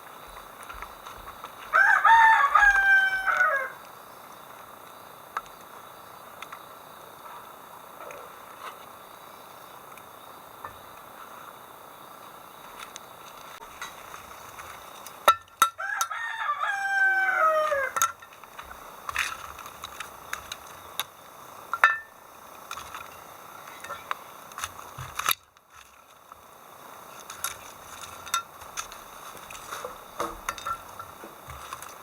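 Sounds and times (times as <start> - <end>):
rooster crowing: 1.7 - 3.8, 15.7 - 18.0.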